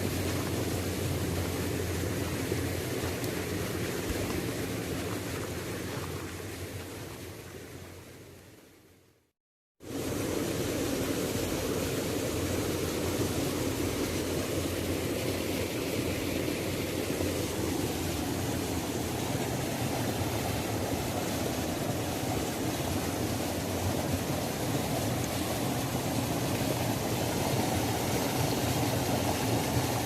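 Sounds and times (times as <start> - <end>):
waterfall rushing: 9.9 - 30.0.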